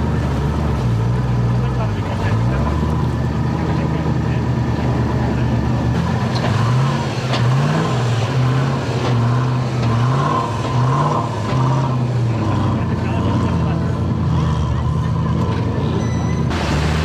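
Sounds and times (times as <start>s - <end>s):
off-road car engine revving: 0.0s - 17.0s.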